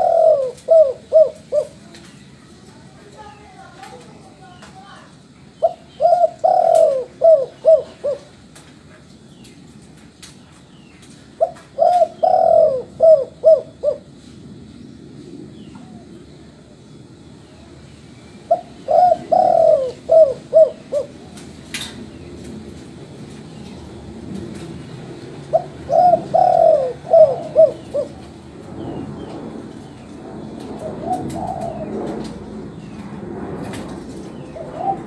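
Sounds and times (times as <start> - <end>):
dove cooing: 0.0 - 2.0, 5.6 - 8.4, 11.4 - 14.2, 18.5 - 21.6, 25.3 - 32.7, 33.6 - 35.0.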